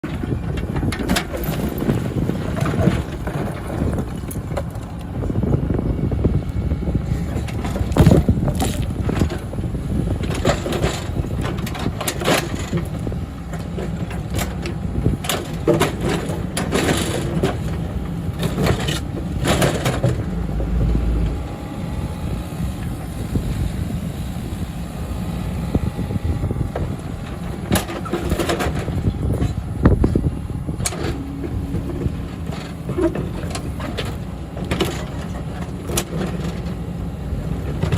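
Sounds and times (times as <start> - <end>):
machinery clanks and knocks: 0.0 - 5.1, 10.1 - 23.6, 26.7 - 36.8
diesel engine rumbling: 0.0 - 37.9.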